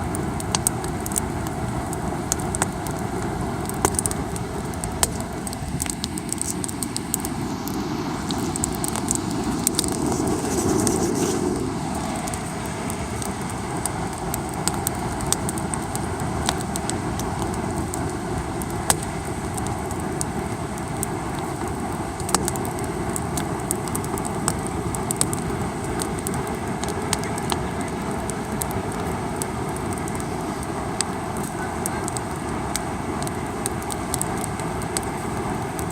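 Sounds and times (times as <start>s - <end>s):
campfire crackling and popping: 0.0s - 35.9s
ocean surf rushing: 5.2s - 14.1s.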